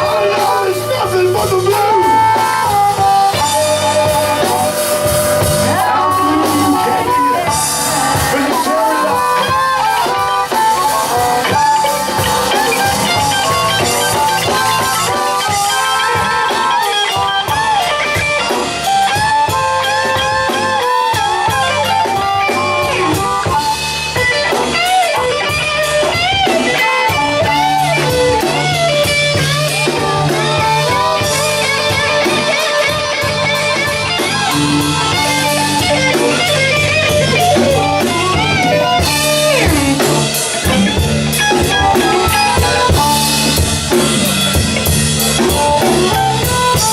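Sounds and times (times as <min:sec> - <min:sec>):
bass guitar: 0:00.0 - 0:46.9
drum kit: 0:00.0 - 0:46.9
electric lead guitar: 0:00.0 - 0:46.9.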